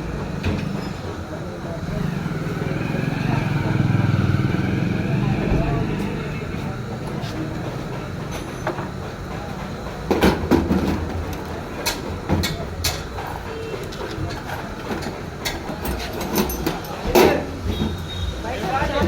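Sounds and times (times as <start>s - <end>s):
metal knocks and clacks: 6.8s - 18.2s.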